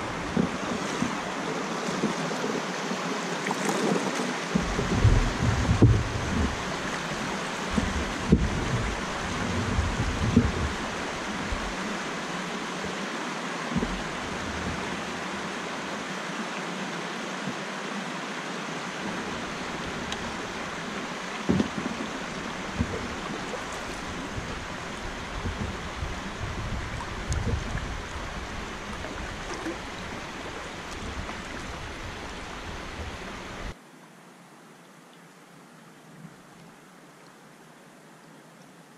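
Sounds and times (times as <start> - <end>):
flowing river water: 0.0 - 38.9
low thumps: 4.6 - 6.7, 7.7 - 11.8.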